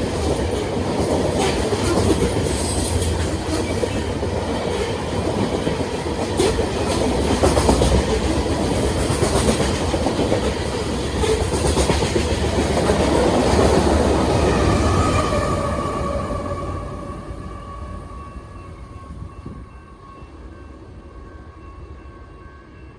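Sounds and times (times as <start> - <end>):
train wheels clicking over rail joints: 0.0 - 15.0.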